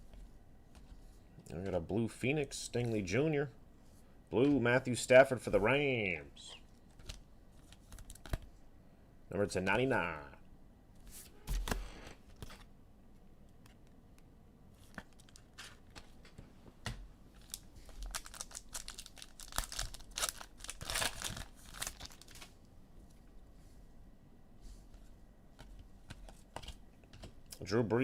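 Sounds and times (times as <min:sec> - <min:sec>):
foil wrappers tearing and crinkling: 0:17.4 - 0:22.5.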